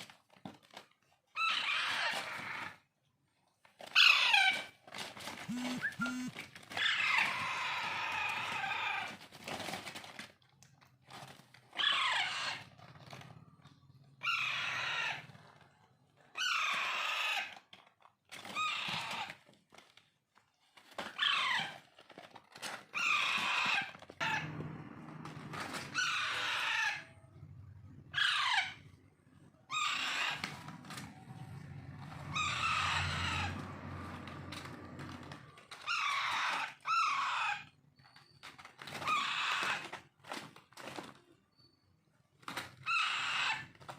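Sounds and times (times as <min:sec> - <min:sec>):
parakeet chicks begging calls: 0:05.5 - 0:06.3, 0:25.8 - 0:27.0, 0:28.0 - 0:28.8, 0:29.7 - 0:30.6, 0:32.2 - 0:33.6.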